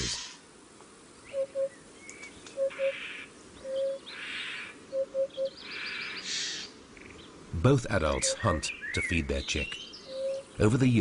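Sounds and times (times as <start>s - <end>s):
low hooting bird calls: 0.0s - 0.4s, 1.2s - 7.4s, 8.1s - 10.6s
thin bird chirps: 8.2s - 10.6s.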